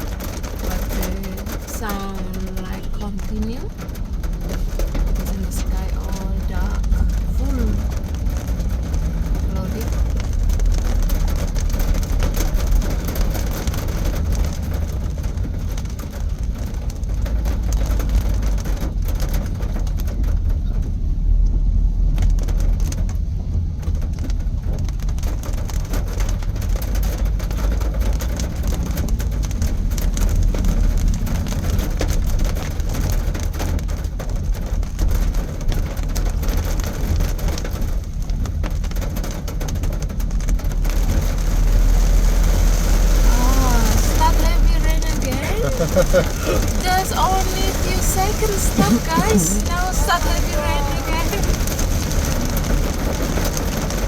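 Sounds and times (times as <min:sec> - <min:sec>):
car driving rumble inside cabin: 0:00.0 - 0:54.0
light rain: 0:00.0 - 0:54.0.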